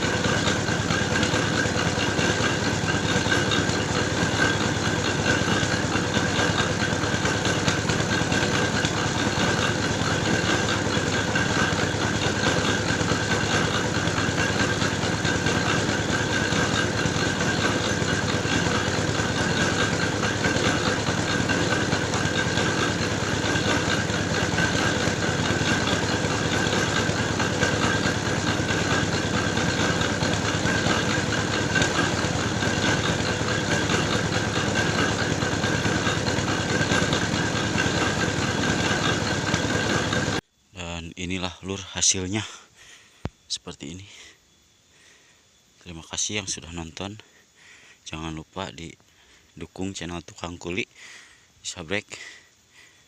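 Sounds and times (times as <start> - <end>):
soil grinding machine running: 0.0 - 40.5
constant machine whine: 0.0 - 53.0.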